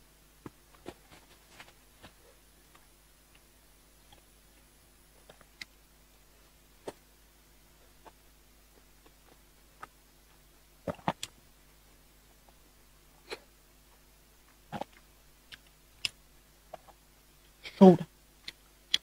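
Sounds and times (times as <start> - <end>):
person chewing: 10.9 - 11.3.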